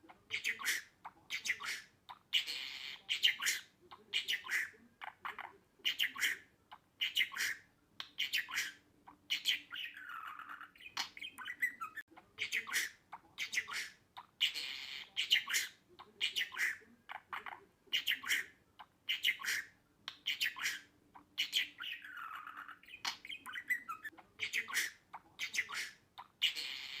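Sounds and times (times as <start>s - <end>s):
budgerigar chirps and squawks: 0.0s - 27.0s
budgerigar warble: 0.3s - 7.6s.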